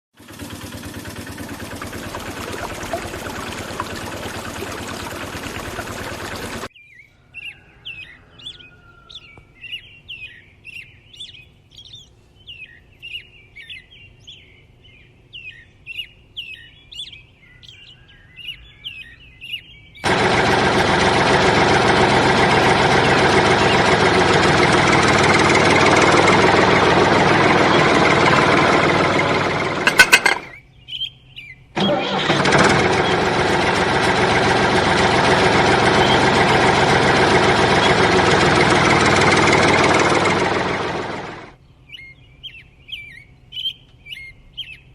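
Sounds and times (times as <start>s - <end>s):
small engine running: 0.1s - 6.7s, 20.0s - 30.6s, 31.8s - 41.6s
small birds chirping: 1.4s - 20.1s, 30.4s - 31.8s, 35.2s - 38.3s, 41.6s - 44.9s.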